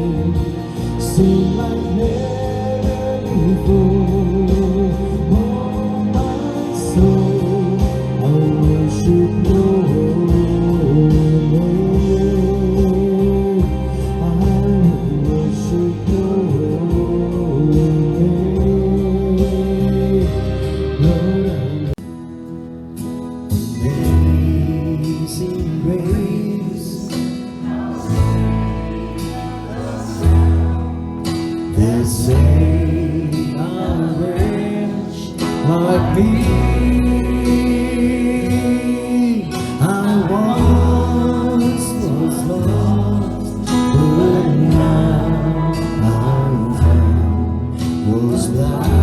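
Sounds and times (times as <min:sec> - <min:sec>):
person singing: 0:00.0 - 0:22.0, 0:23.7 - 0:49.0
instrumental music: 0:00.0 - 0:49.0.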